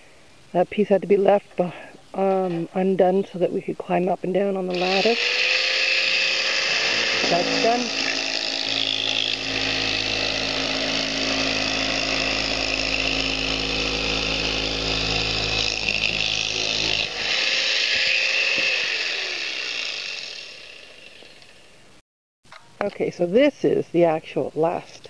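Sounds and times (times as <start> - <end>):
falling whine winding down: 4.7 - 21.6
motor humming: 4.7 - 21.6.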